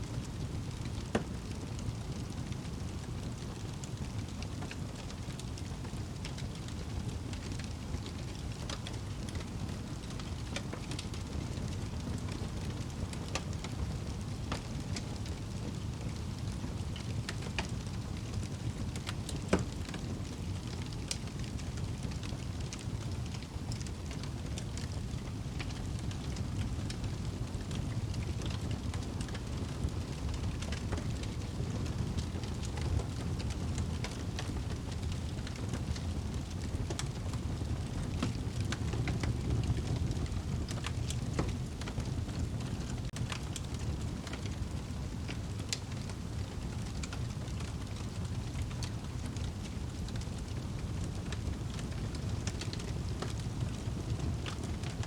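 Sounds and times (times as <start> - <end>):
flames rumbling: 0.1 - 55.0
wood fire crackling: 0.1 - 55.0.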